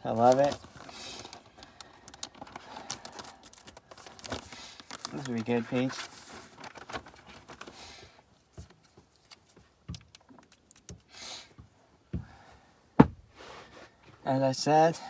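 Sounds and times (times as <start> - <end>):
rustling of handled objects: 0.0 - 11.7
small clicks and taps: 8.6 - 11.1.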